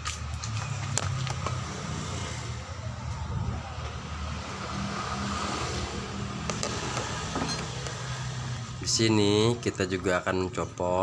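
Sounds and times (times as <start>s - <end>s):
vehicle engine humming: 0.0s - 10.9s.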